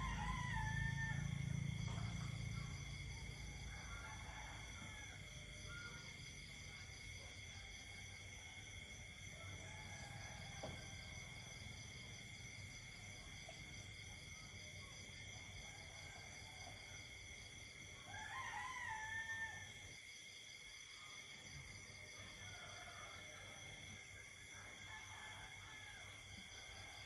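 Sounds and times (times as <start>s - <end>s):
rooster crowing: 0.0s - 6.2s, 18.1s - 19.8s.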